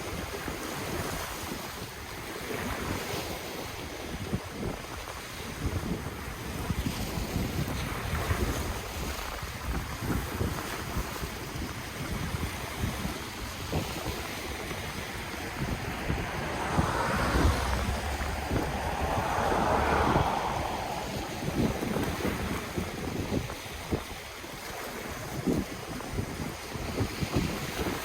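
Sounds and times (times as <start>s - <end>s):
ocean waves washing ashore: 0.0s - 28.0s
wind buffeting microphone: 0.0s - 28.0s.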